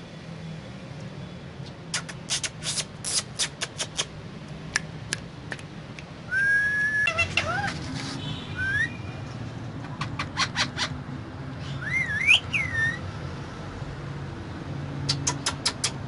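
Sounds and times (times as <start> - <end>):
parrot clicking calls: 1.6 - 6.2, 7.0 - 7.7, 9.8 - 11.0, 15.0 - 16.0
parrot whistling: 6.3 - 7.7, 8.6 - 9.0, 11.6 - 13.0.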